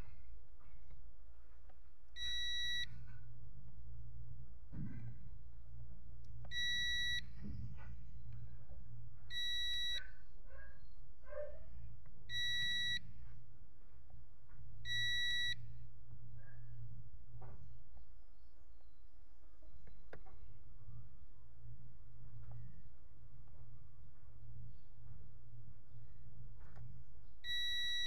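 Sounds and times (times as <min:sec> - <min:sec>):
low hum: 0:00.0 - 0:12.4
multimeter beeping: 0:02.2 - 0:02.9, 0:06.5 - 0:07.3, 0:09.3 - 0:10.0, 0:12.3 - 0:13.0, 0:14.8 - 0:15.6, 0:27.4 - 0:28.0.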